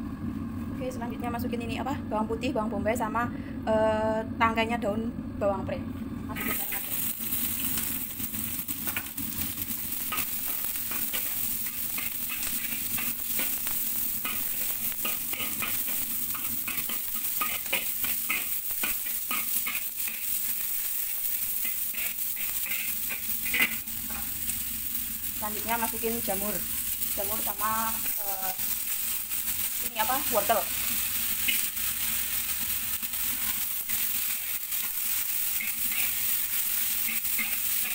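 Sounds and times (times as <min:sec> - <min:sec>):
vegetables sizzling in a wok: 0:00.0 - 0:37.9
metal spatula scraping wok: 0:06.3 - 0:24.6, 0:26.6 - 0:37.9.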